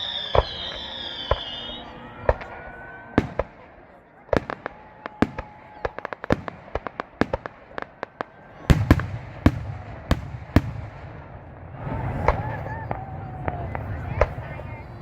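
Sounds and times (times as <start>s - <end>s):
fireworks booms: 0.0s - 15.0s
fireworks cracks and pops: 3.2s - 11.0s.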